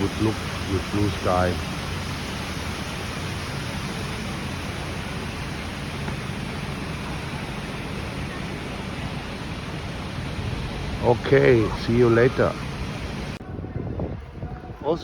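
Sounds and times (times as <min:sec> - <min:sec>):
fountain water splashing: 0:00.0 - 0:13.4.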